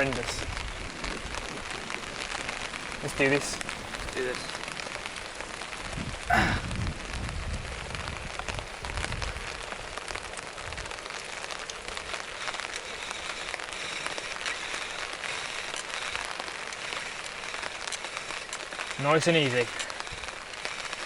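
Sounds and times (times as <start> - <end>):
wind buffeting microphone: 0.0 - 12.4
rain pattering on foliage: 0.0 - 21.0.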